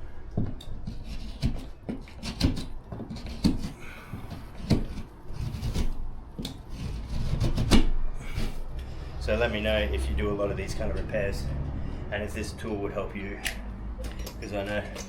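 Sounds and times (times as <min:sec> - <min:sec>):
drywall panel knocking and scraping: 0:00.4 - 0:08.6.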